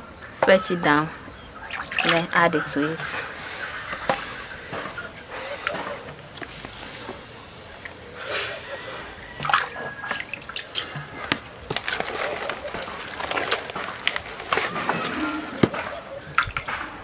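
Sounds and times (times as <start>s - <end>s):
dough sloshing in a pot: 3.0s - 16.8s
knocks and scrapes in a pot: 8.6s - 16.8s.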